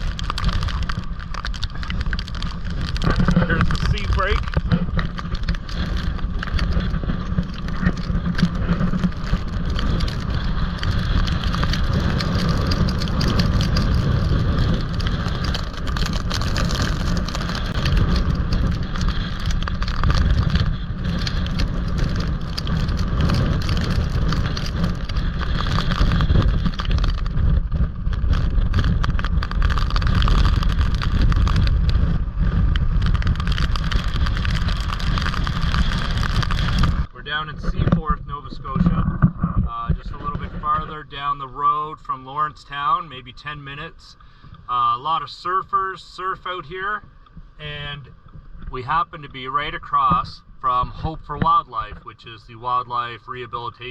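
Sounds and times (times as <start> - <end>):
surf breaking on shore: 0.0 - 37.1
gusting wind buffeting microphone: 0.0 - 52.4.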